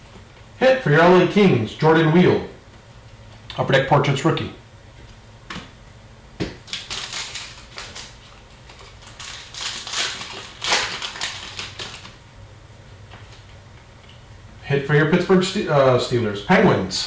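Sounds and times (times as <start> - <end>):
card wrappers crinkling and rustling: 6.6 - 12.2.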